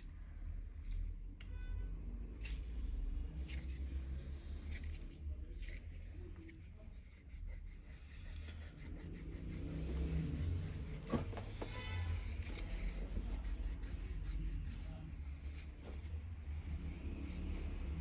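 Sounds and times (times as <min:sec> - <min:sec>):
steady low hum: 0:00.0 - 0:18.0
hand tools scraping and clicking: 0:03.3 - 0:04.0, 0:04.6 - 0:06.7.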